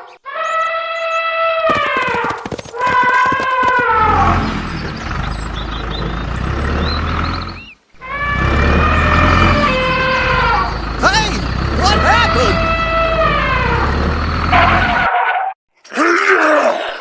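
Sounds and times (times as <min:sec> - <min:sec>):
rapid clicking: 0:01.7 - 0:05.0
truck engine rumble: 0:01.7 - 0:15.1
drawn-out pitched tone: 0:01.8 - 0:15.1.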